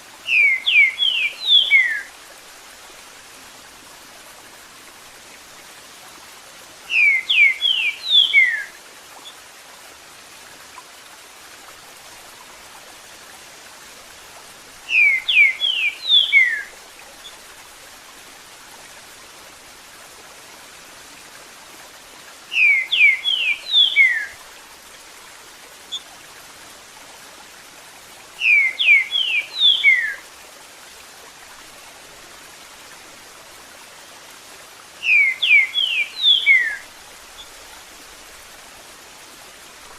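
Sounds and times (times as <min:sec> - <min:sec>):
flowing water: 0:00.0 - 0:39.9
bird singing whistled notes: 0:00.3 - 0:02.1, 0:06.9 - 0:08.7, 0:14.9 - 0:16.7, 0:22.5 - 0:24.4, 0:28.4 - 0:30.2, 0:35.0 - 0:36.8.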